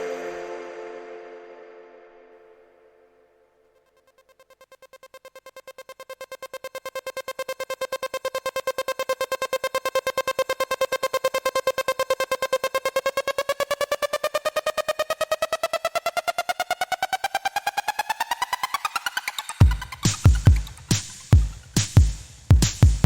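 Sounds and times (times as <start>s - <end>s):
pulsing synthesizer tone: 3.6s - 20.9s.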